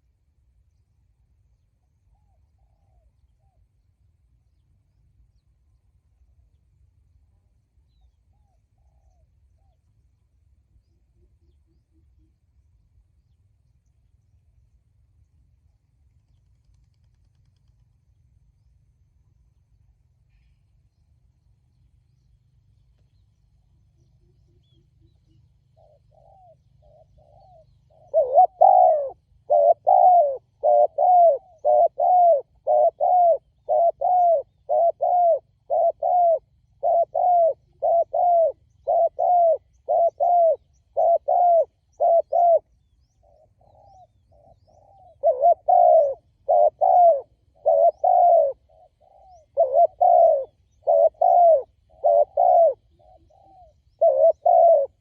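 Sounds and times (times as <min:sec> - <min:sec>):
dove cooing: 0:24.6 - 0:55.0.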